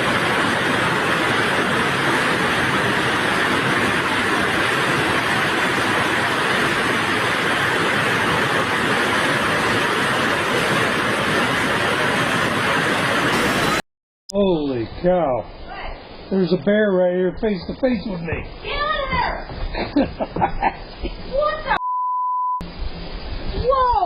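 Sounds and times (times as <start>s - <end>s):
electrical arc hissing: 0.0s - 13.8s.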